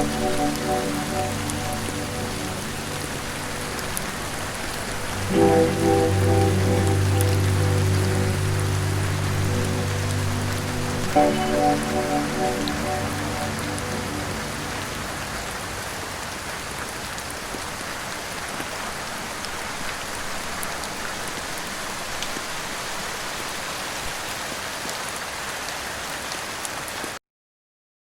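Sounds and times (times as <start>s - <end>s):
soft music: 0.0s - 16.0s
steady rain: 0.0s - 27.2s.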